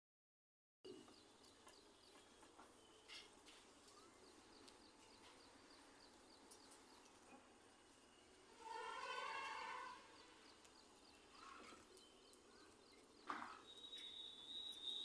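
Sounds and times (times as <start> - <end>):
faint high chirps: 2.0 - 6.0, 11.1 - 15.0.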